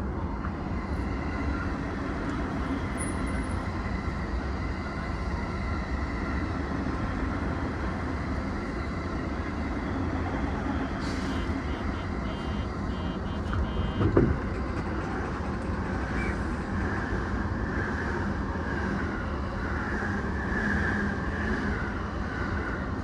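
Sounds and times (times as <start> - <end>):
faint beeps: 11.3 - 14.1.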